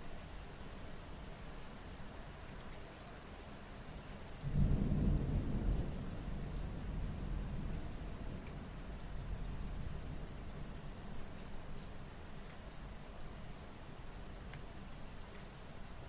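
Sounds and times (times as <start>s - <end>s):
rain falling: 0.0s - 16.0s
thunder rolling: 4.5s - 7.8s.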